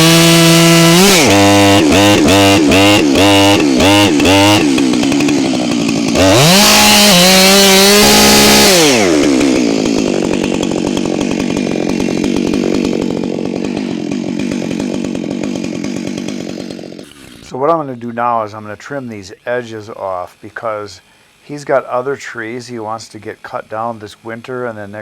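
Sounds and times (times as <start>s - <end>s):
chainsaw revving and idling: 0.0s - 17.8s.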